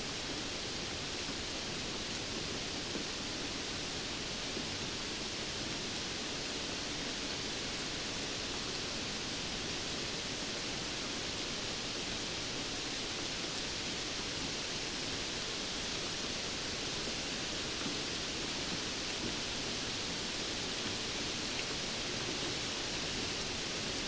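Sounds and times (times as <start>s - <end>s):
steady rainfall hiss: 0.0s - 24.0s.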